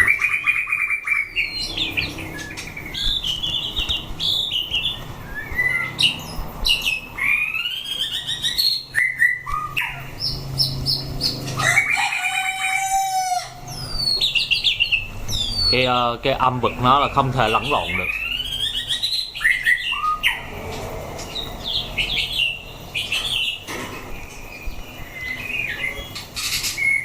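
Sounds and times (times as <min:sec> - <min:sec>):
bird singing whistled phrases: 0:00.0 - 0:10.0, 0:16.7 - 0:20.4.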